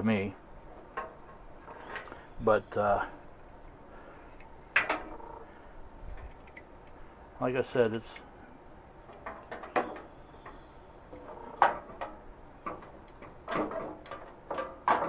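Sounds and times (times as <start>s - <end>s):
metal camp stove parts clattering: 4.7s - 5.3s, 9.1s - 15.0s.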